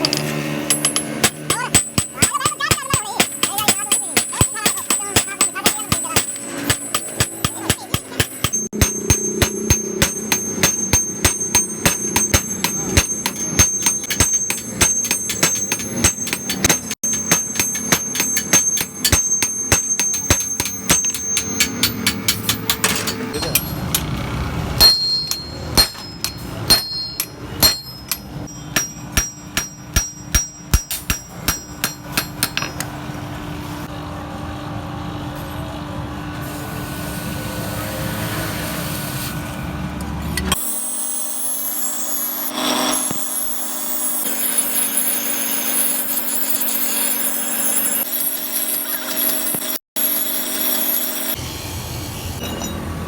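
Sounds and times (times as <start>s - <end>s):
hammer striking steel on anvil: 0.0s - 33.2s, 52.4s - 53.0s.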